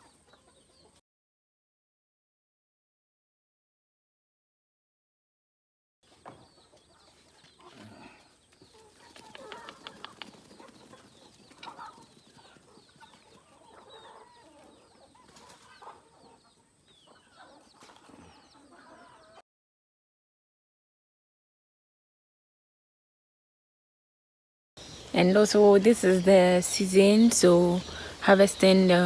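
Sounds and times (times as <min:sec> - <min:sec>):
chickens clucking: 0:00.0 - 0:01.0, 0:06.1 - 0:19.4, 0:24.8 - 0:29.0
chicks cheeping: 0:00.0 - 0:01.0, 0:06.1 - 0:19.4, 0:24.8 - 0:29.0
faint clicks: 0:09.1 - 0:10.5.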